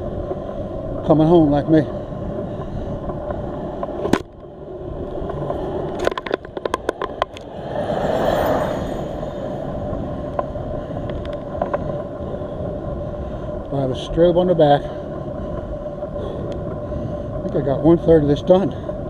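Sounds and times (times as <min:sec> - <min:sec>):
wind and road noise: 0:00.0 - 0:19.0
car passing on wet road: 0:07.3 - 0:10.4.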